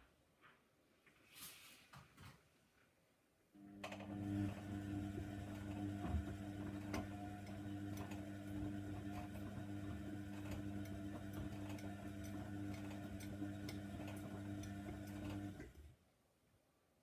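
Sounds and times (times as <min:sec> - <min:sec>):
washing machine motor humming: 0:03.6 - 0:16.0
clicking in washing drum: 0:05.2 - 0:15.8.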